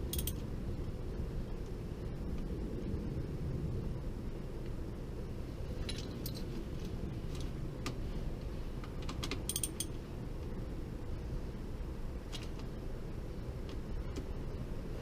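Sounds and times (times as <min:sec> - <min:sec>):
metal tools clinking: 0:00.0 - 0:00.4, 0:05.8 - 0:06.5, 0:09.5 - 0:10.0
steady low hum: 0:00.0 - 0:15.0.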